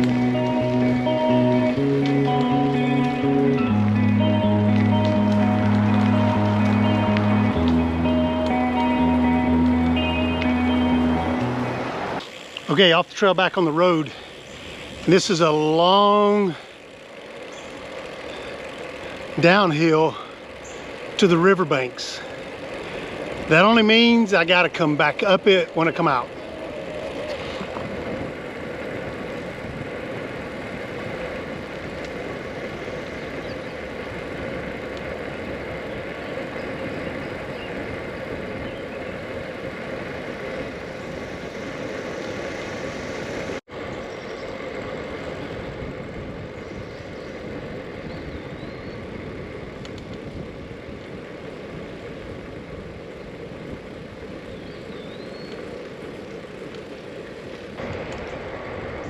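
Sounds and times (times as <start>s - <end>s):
road and wind noise: 0.0s - 59.0s.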